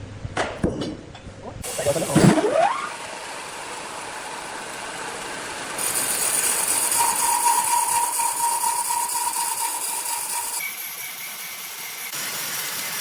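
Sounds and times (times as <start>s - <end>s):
high whine: 1.6s - 5.8s
sawmill machinery running: 1.6s - 13.0s.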